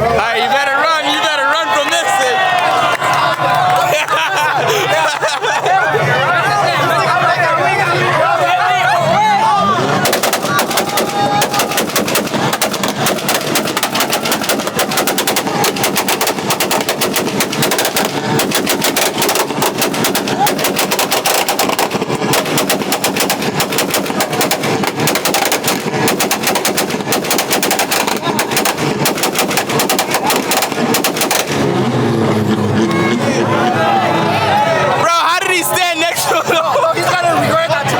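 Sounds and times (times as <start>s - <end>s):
car exhaust popping and banging: 10.0s - 32.0s.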